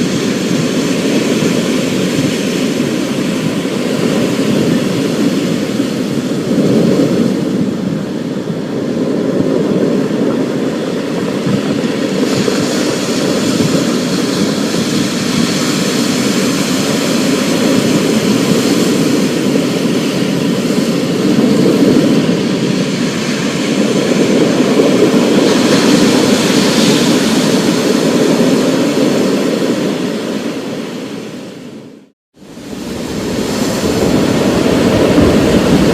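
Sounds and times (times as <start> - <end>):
dense rush of rain noise: 32.4 - 35.9
low thunder rumble: 32.5 - 35.9.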